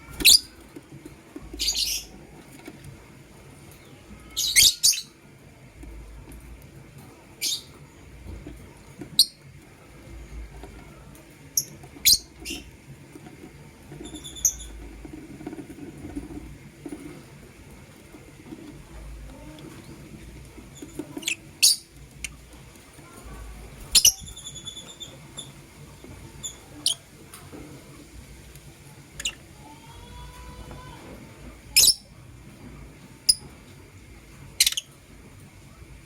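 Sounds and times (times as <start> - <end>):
lovebirds chirping: 1.6 - 2.2, 23.6 - 27.1, 34.5 - 35.0.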